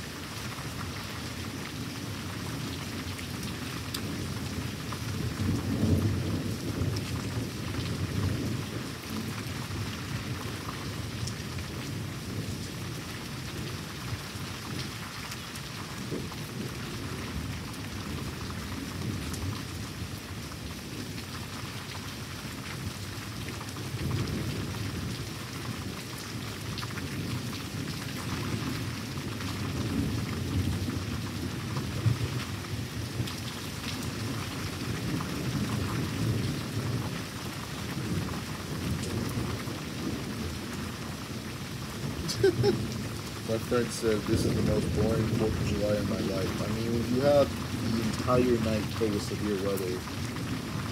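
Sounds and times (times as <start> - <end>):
steady rain: 0.0 - 50.9
rolling thunder: 4.0 - 13.0, 42.0 - 50.9.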